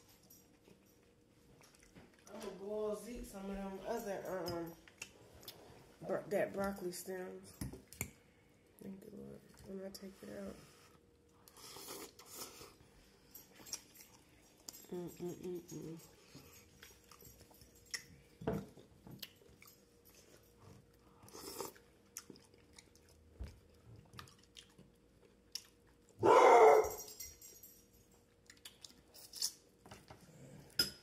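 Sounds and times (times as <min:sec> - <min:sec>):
close chewing with wet mouth sounds: 0:01.4 - 0:02.4, 0:13.5 - 0:26.2, 0:28.2 - 0:29.3.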